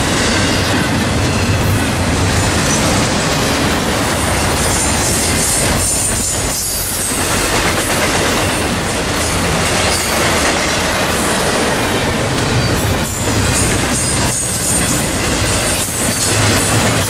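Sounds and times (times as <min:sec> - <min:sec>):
freight train wheels on rails: 0:00.0 - 0:17.0.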